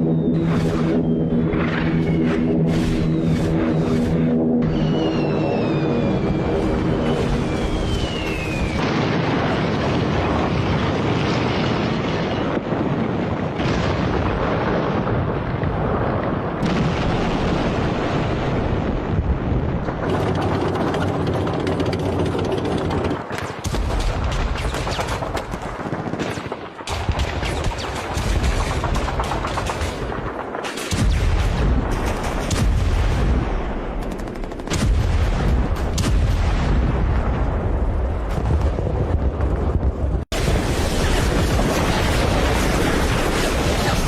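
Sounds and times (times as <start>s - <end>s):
explosions rumbling: 0.0s - 44.0s
rapid gunfire: 20.0s - 36.5s, 40.3s - 44.0s.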